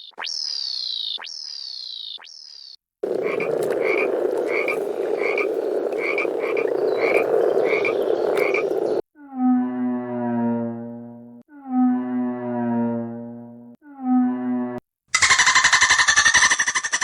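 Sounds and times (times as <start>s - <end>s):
animal chorus: 3.0s - 9.0s.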